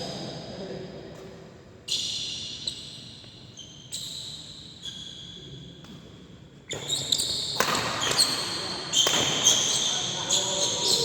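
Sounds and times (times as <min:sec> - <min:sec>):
shoes squeaking on court floor: 0:01.9 - 0:06.0, 0:06.7 - 0:11.0.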